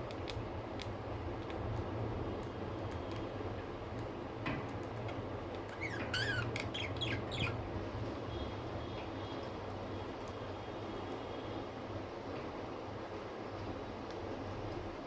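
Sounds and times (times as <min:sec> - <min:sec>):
budgerigar chirping: 0:05.8 - 0:07.6.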